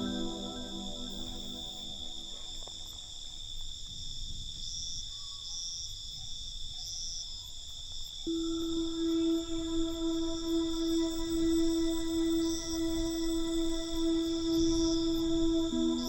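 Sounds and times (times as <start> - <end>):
held low musical tone: 0.0 - 2.4, 8.3 - 16.0
crickets trilling: 0.0 - 16.0.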